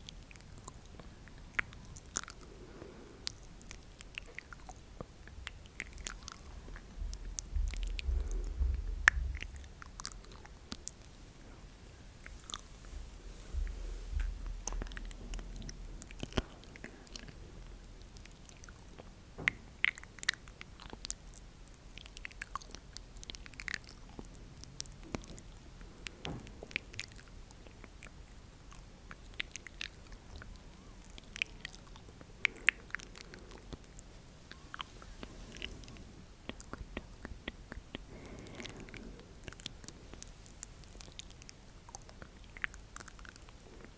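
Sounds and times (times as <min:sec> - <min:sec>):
wet mouth clicks and pops: 0:03.3 - 0:11.0, 0:18.0 - 0:30.5, 0:36.4 - 0:43.9.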